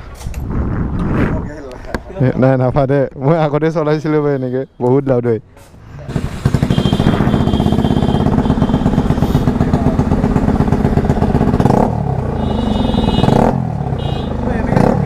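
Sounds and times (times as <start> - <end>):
loud motorcycle exhaust: 6.1 - 15.0.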